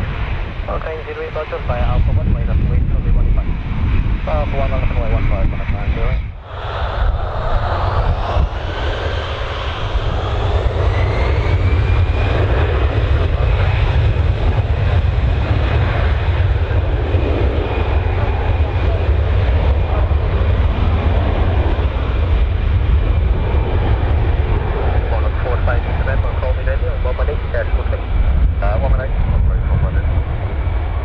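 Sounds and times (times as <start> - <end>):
airliner engines rumbling: 0.0 - 31.0.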